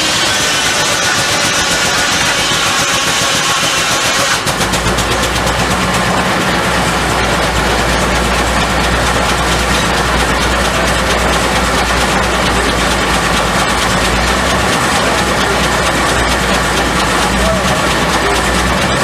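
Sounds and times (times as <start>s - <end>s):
deep machinery hum: 0.0s - 19.0s
fast mechanical clicking: 0.0s - 19.0s.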